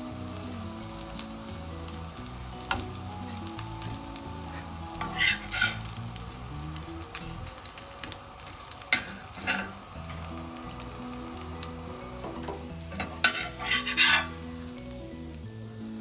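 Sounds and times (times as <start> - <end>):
faint hiss: 0.0 - 16.0
soft background music: 0.0 - 16.0
serving spoon scraping cookware: 4.4 - 6.5, 8.9 - 10.5, 12.0 - 14.7.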